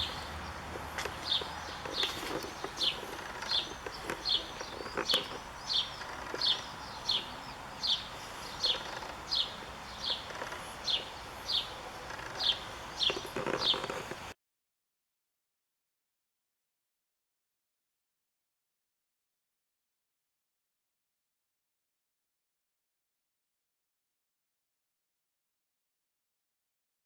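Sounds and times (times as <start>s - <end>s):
bird calling: 0.0s - 14.3s.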